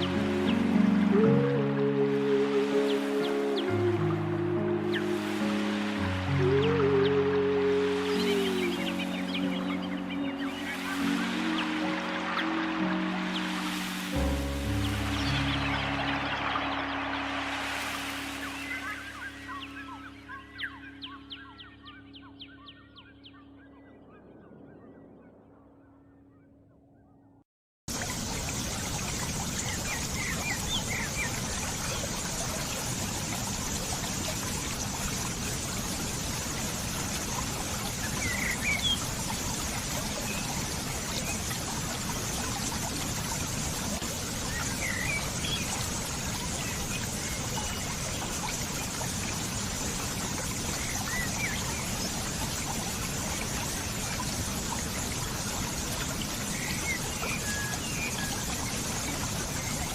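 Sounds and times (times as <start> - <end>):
trickling stream: 0.0 - 25.0, 27.9 - 59.9
bird chirps: 14.6 - 27.4.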